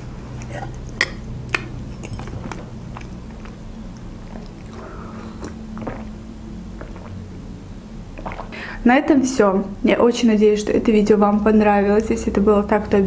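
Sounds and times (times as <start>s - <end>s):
woman chewing and swallowing: 0.0s - 7.3s, 8.1s - 8.7s
sip from a mug: 4.2s - 6.2s, 6.8s - 7.2s, 8.2s - 8.8s.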